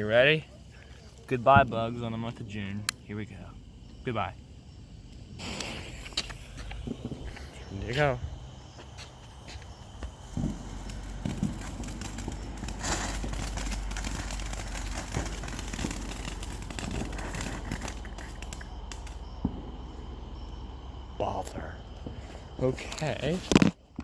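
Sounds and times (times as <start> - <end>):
firework hissing and crackling: 3.5 - 23.7.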